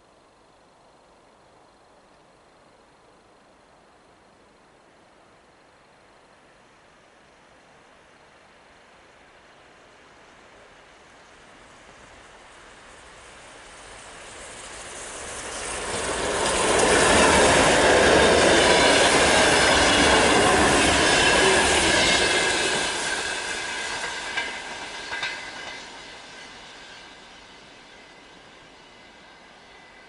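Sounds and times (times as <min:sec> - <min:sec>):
train rumbling past: 0:07.7 - 0:30.0.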